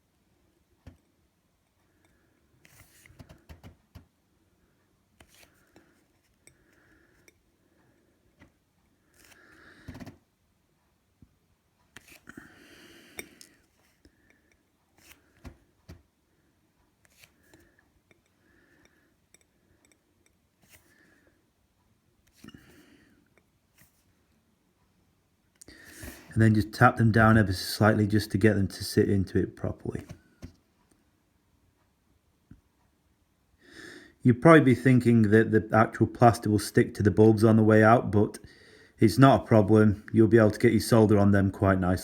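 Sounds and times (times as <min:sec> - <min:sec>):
soft breathing: 0:04.4 - 0:10.2, 0:12.0 - 0:21.5, 0:22.3 - 0:24.1, 0:25.6 - 0:26.4, 0:38.4 - 0:39.0.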